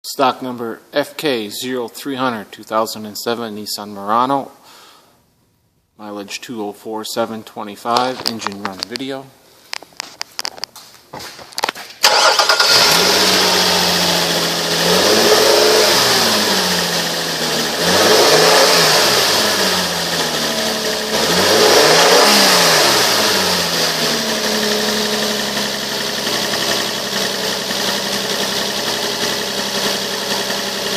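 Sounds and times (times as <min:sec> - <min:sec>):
car engine idling: 0:12.0 - 0:30.9
car engine starting and revving: 0:12.0 - 0:30.9.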